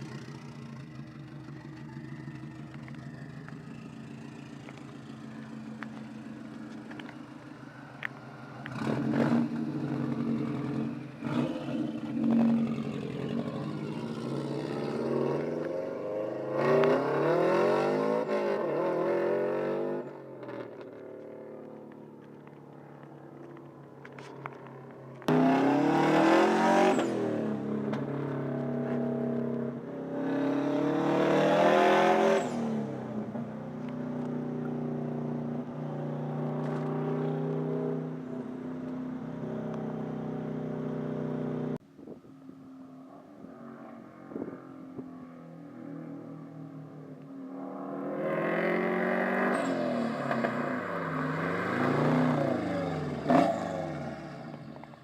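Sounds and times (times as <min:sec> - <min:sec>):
car engine revving: 0:00.0 - 0:22.6, 0:24.0 - 0:41.8, 0:43.4 - 0:54.9.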